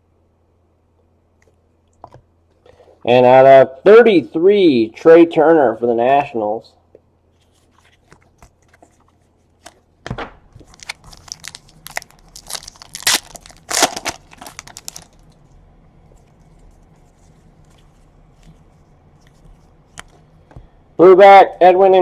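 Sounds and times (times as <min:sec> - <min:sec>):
foil wrapper tearing and crinkling: 0:10.6 - 0:15.4.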